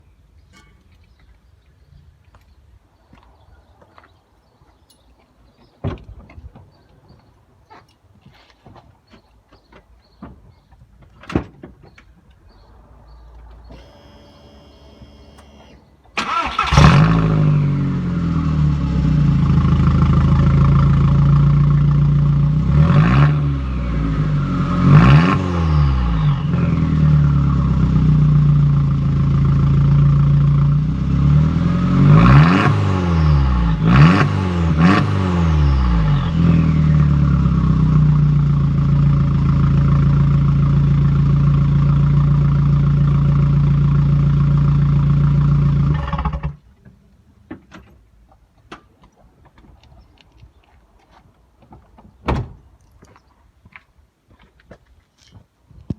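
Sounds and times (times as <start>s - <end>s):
car engine starting and revving: 12.5s - 46.6s.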